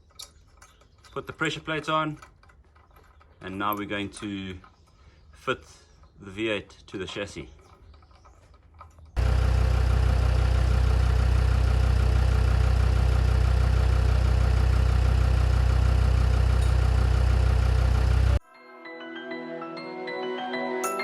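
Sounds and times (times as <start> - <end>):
engine running with low rumble: 9.2 - 18.4.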